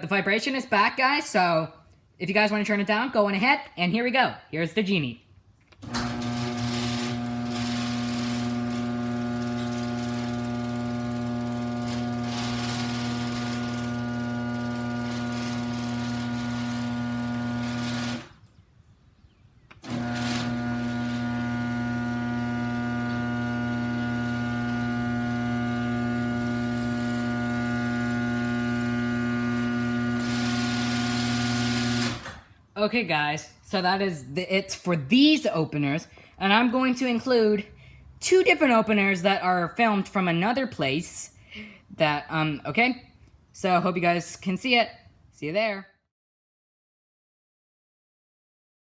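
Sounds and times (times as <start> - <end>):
garage door opener buzzing hum: 5.8 - 18.6, 19.7 - 32.6.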